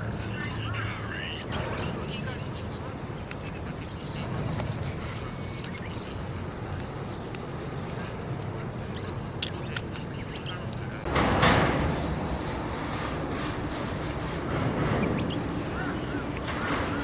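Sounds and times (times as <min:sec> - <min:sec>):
campfire crackling: 0:00.0 - 0:17.0
steady high whine: 0:00.0 - 0:17.0
faint high chirp: 0:04.8 - 0:11.1.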